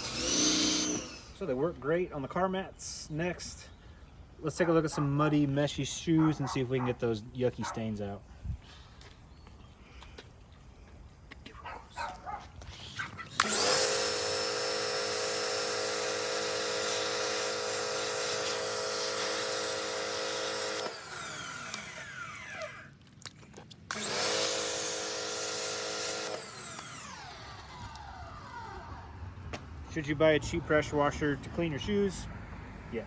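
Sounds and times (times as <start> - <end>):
pressure washer pump whine: 0.0 - 2.0, 13.4 - 23.0, 23.9 - 31.4.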